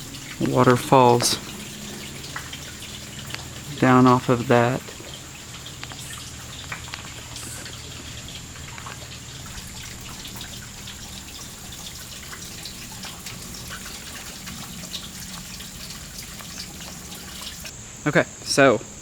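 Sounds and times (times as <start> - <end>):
thin high tone: 0.0 - 5.3
faint water rush: 0.0 - 17.7
water dripping and trickling: 0.0 - 17.7.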